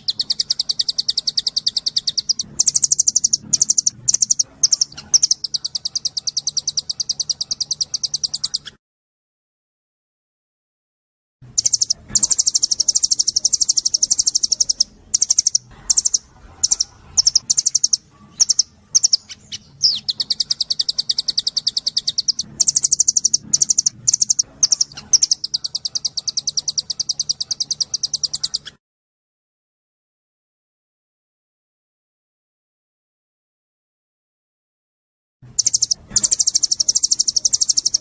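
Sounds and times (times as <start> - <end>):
songbird trilling: 0.0 - 8.8, 11.6 - 28.8, 35.5 - 38.0.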